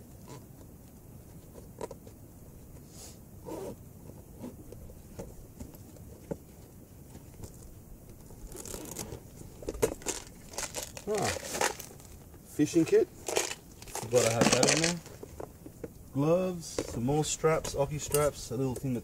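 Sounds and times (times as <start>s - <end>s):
gear rummaged in bags: 7.1s - 15.5s.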